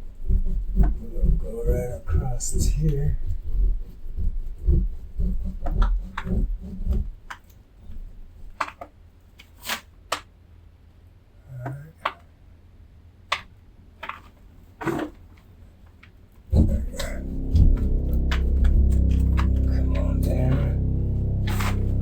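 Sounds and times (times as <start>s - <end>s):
rasping saw strokes on drywall: 0.0s - 7.2s.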